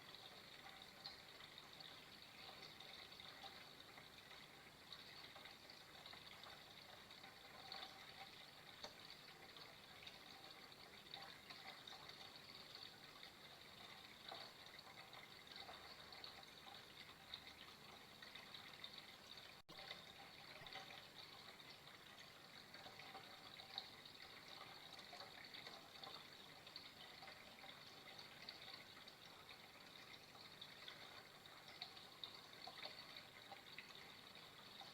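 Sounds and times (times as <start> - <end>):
water trickling and splashing: 0.0 - 34.9.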